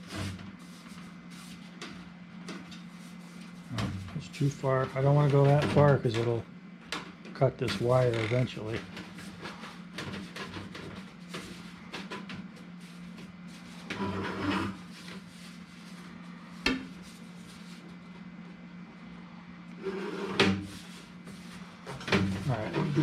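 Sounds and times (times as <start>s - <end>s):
steady low hum: 0.0s - 23.0s
short scrape: 13.9s - 14.9s.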